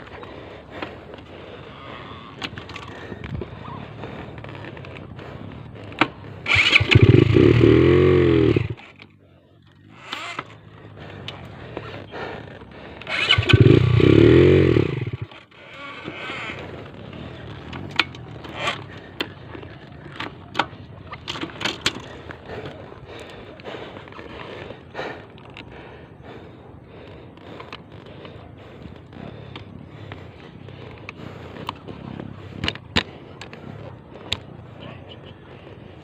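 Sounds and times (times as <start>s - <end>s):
engine revving: 1.9s - 9.1s, 13.0s - 20.1s.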